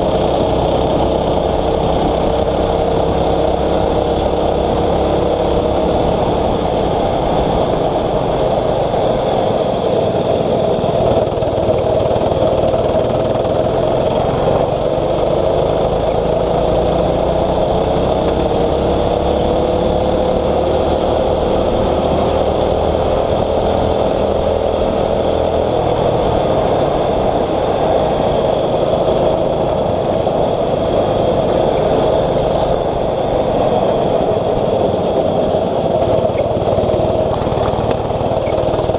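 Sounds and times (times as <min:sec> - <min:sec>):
kart engine running hard: 0:00.0 - 0:38.9
steady rushing noise: 0:00.0 - 0:38.9.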